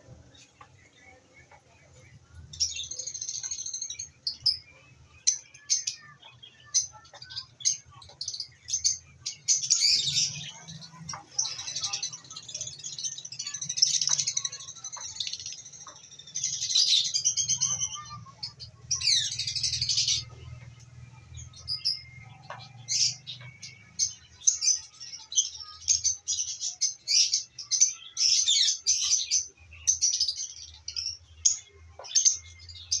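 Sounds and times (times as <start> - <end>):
lovebirds chirping: 0.0 - 33.0.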